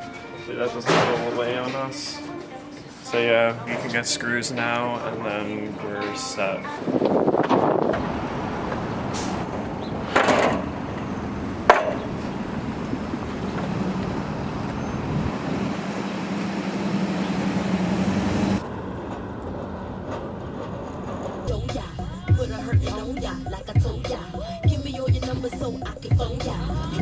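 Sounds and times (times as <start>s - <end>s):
traffic noise with low hum: 6.8s - 22.3s.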